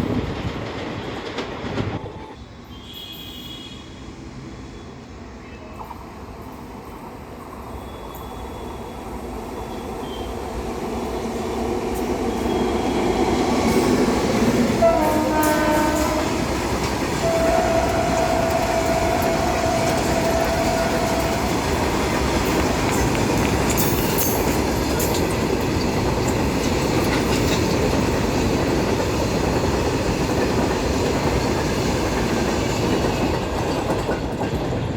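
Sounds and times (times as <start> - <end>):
train wheels rumbling on rails: 0.0 - 2.4, 5.8 - 34.9
train horn: 2.7 - 4.0, 12.3 - 14.0, 14.6 - 22.2.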